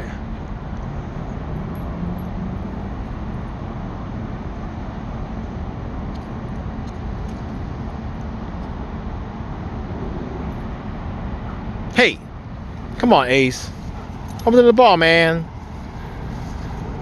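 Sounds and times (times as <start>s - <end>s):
distant road traffic rumble: 0.0s - 17.0s.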